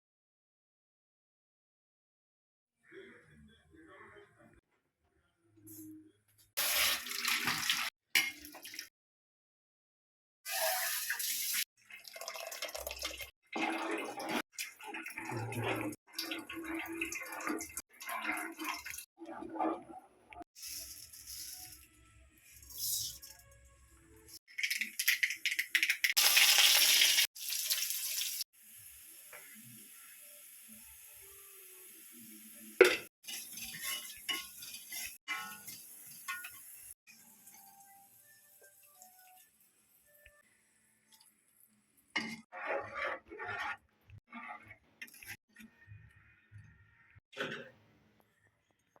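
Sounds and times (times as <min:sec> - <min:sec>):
water running from tap: 0:06.6 - 0:08.9, 0:10.5 - 0:19.0, 0:24.6 - 0:28.4.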